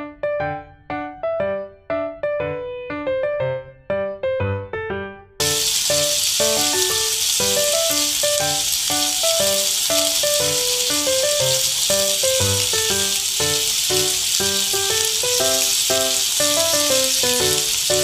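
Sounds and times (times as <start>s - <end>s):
background music melody: 0.0s - 18.0s
chicken sizzling in a pan: 5.4s - 18.0s.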